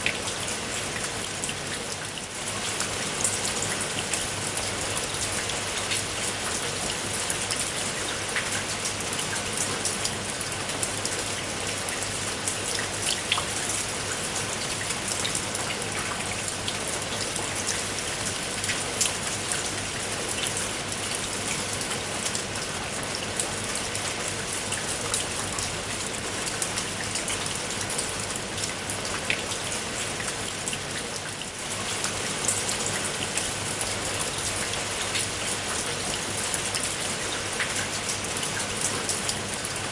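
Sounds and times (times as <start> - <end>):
raindrops ticking on surface: 0.0 - 39.9
steady rain hiss: 0.0 - 39.9.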